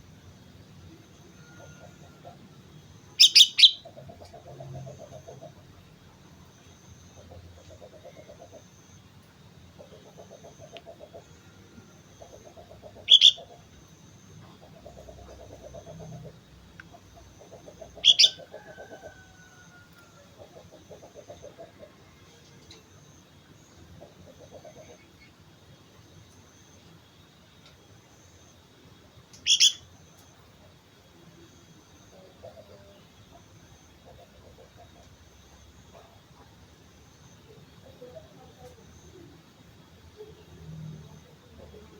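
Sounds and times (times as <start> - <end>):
faint steady high tone: 0.0 - 3.9, 4.8 - 41.9
bulbul high calls: 1.1 - 5.6, 9.8 - 22.0, 29.4 - 30.2
low rapidly pulsing call: 3.2 - 3.9, 11.9 - 13.7, 17.4 - 18.5.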